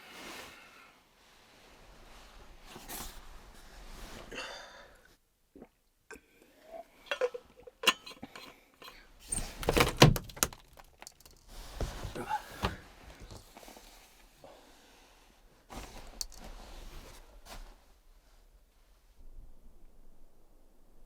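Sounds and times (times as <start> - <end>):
soft breathy rustling: 0.0 - 5.2, 11.5 - 19.1
objects clicking and clinking: 7.1 - 11.5.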